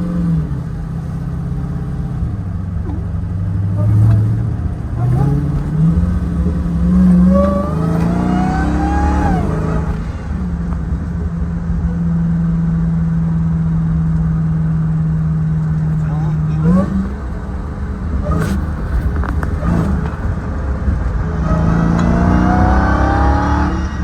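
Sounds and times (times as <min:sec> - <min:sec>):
car engine accelerating: 0:00.0 - 0:24.0
rising whine: 0:04.7 - 0:14.3.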